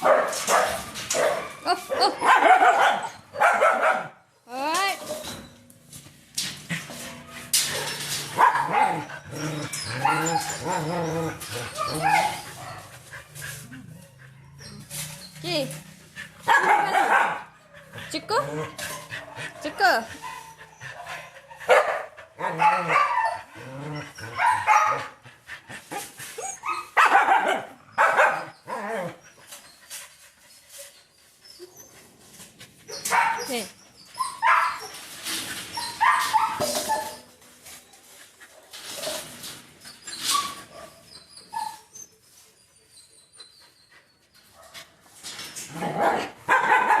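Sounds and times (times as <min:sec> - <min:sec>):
dog barking and yipping: 0:00.0 - 0:04.2, 0:07.5 - 0:25.2, 0:25.9 - 0:29.2, 0:32.9 - 0:37.3, 0:40.2 - 0:41.9, 0:45.7 - 0:47.0
dog whimpering: 0:08.6 - 0:15.8, 0:32.9 - 0:35.0.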